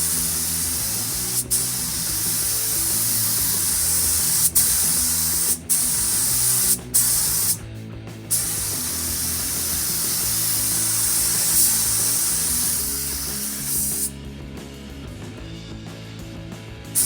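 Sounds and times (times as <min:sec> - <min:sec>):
paint spray gun hissing: 0:00.0 - 0:07.6, 0:08.3 - 0:14.2.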